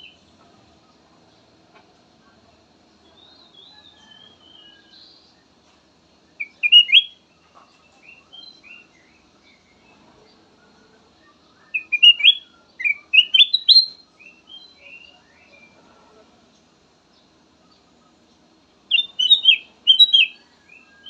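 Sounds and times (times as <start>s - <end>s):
bird whistled song: 3.2s - 5.1s, 6.4s - 7.2s, 8.0s - 10.0s, 11.4s - 15.8s, 18.9s - 21.0s.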